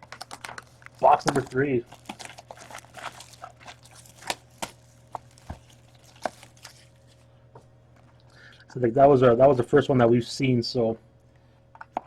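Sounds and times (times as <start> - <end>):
faint electrical hum: 0.0 - 12.0
cards and cardboard box handled: 0.1 - 7.2.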